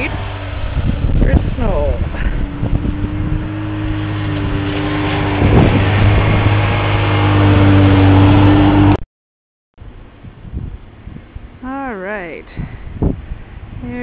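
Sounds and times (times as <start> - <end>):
snowmobile engine running: 0.0 - 9.0.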